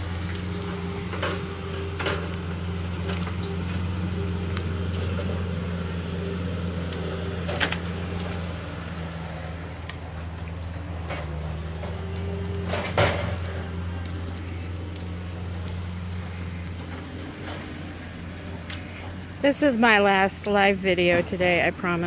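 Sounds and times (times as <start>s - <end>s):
engine running with low hum: 0.0s - 22.0s
sharp knocks and clatter: 9.6s - 17.9s.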